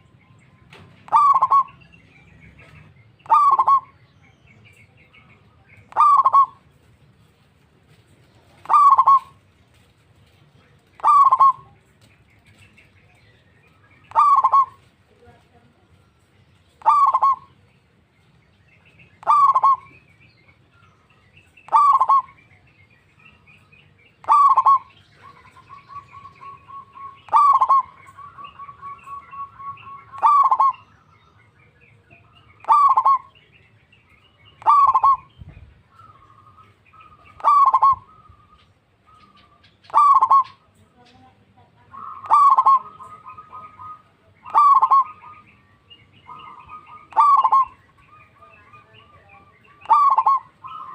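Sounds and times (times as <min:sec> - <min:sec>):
dove calling: 0:00.0 - 0:50.9
rapid trilling coo: 0:01.1 - 0:01.8, 0:03.3 - 0:04.0, 0:05.9 - 0:06.7, 0:08.6 - 0:09.9, 0:11.0 - 0:11.8, 0:14.1 - 0:14.9, 0:16.8 - 0:17.5, 0:19.2 - 0:20.0, 0:21.7 - 0:22.4, 0:24.2 - 0:30.9, 0:32.6 - 0:33.3, 0:34.6 - 0:35.3, 0:36.0 - 0:38.6, 0:39.2 - 0:40.7, 0:41.9 - 0:45.6, 0:46.3 - 0:50.9.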